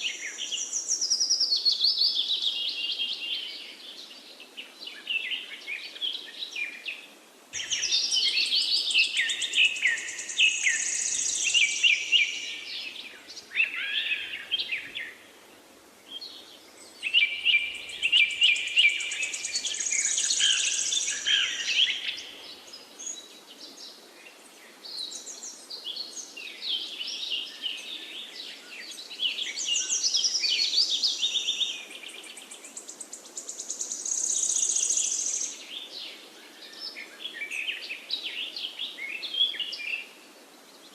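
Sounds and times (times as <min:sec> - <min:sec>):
faint steady hiss: 0:00.0 - 0:40.9
birds chirping and trilling: 0:07.6 - 0:15.2, 0:16.1 - 0:40.1.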